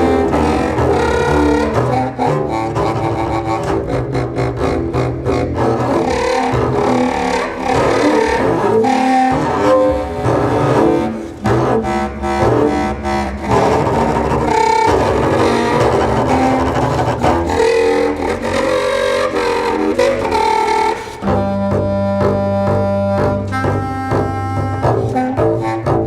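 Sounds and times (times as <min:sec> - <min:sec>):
bowed double bass: 0:00.0 - 0:26.0
low clarinet: 0:00.0 - 0:26.0.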